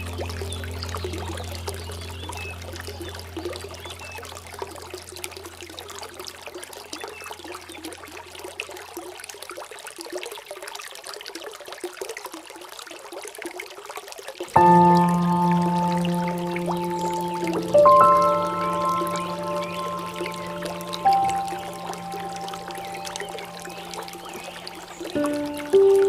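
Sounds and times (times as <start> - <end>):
low steady drone: 0.0 - 5.9, 14.6 - 26.0
water trickling and splashing: 0.0 - 26.0.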